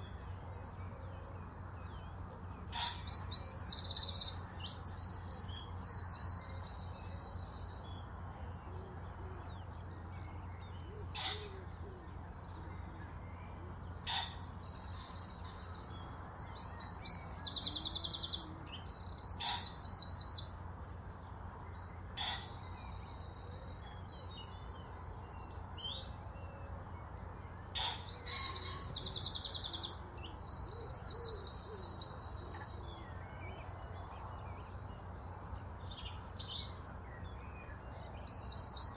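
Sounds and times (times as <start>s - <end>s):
songbird trilling: 2.6s - 8.2s, 13.8s - 20.6s, 22.1s - 24.6s, 27.6s - 33.8s.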